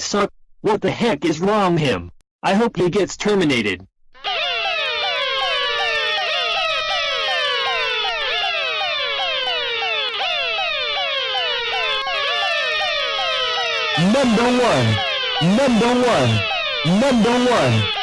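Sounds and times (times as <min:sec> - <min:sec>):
rising and falling siren wails: 0:04.2 - 0:18.0
rapid falling electronic sweeps: 0:04.3 - 0:18.0.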